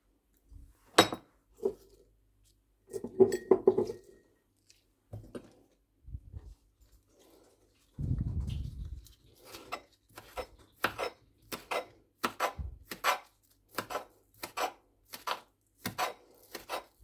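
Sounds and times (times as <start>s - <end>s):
dishes and cutlery clinking: 2.9s - 4.2s.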